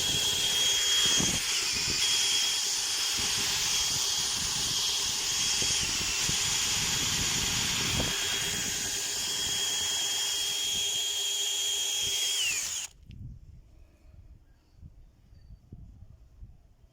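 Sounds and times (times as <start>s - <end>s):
power drill whining: 0.0s - 13.0s.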